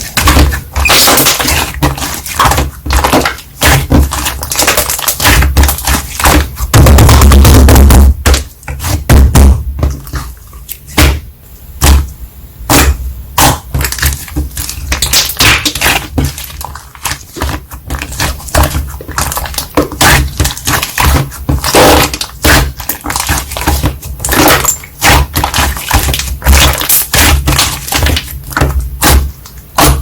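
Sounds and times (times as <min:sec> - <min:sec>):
slime squishing and popping: 0:00.0 - 0:09.4, 0:12.7 - 0:30.0
heavy low thuds: 0:06.7 - 0:08.4.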